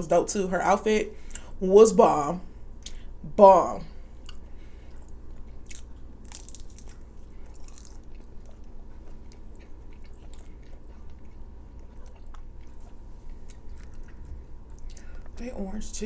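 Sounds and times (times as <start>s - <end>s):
person chewing food: 4.1s - 15.4s
crisp crunches: 5.7s - 8.3s.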